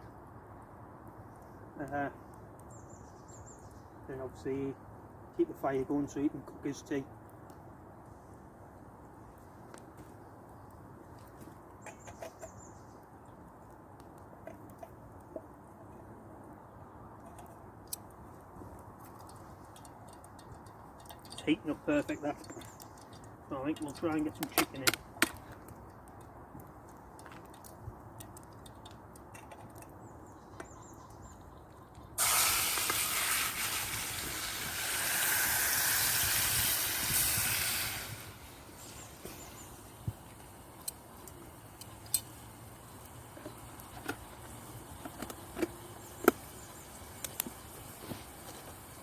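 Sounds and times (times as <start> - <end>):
chicken sizzling in hot oil: 32.2 - 49.0
oil popping: 32.2 - 49.0.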